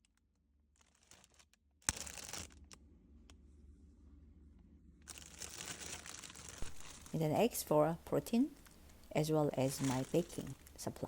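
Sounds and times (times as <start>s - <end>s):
faint low hum: 2.5s - 11.0s.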